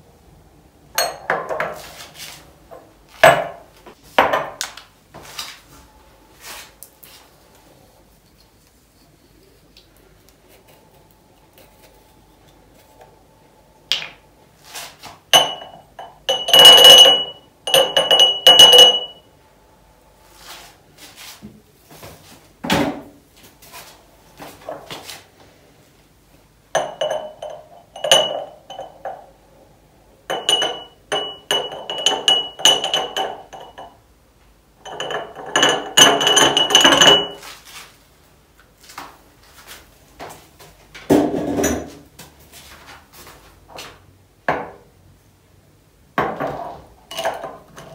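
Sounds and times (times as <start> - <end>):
glass jars clinking and rattling: 1.0 - 1.7, 15.4 - 19.2, 26.8 - 29.3, 30.3 - 34.0, 34.8 - 37.4, 46.3 - 47.9.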